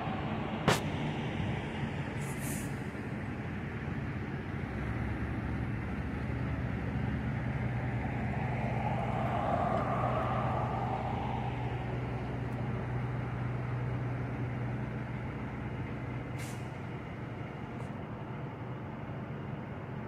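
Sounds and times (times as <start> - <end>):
engine hum: 0.0 - 20.0
road noise: 0.0 - 20.0
vehicle passing: 6.6 - 13.4.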